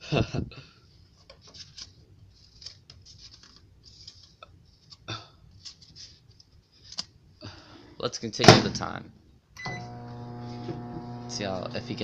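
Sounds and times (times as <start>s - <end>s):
microwave oven humming: 9.6s - 12.0s.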